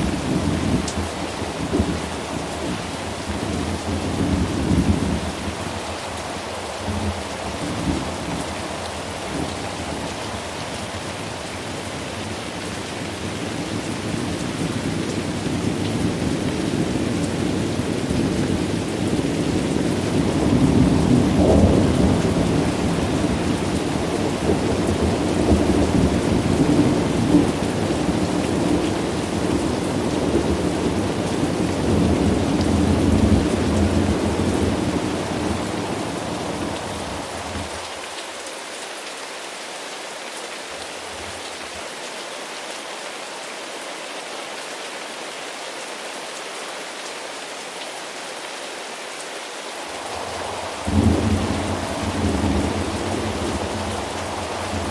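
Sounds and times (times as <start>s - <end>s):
steady rain: 0.0s - 54.9s
rolling thunder: 50.0s - 54.9s.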